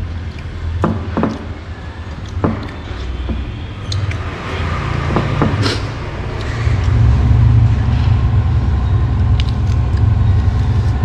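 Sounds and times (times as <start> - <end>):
road traffic rumble: 0.0 - 11.0
sharp clicks and knocks: 0.8 - 4.2.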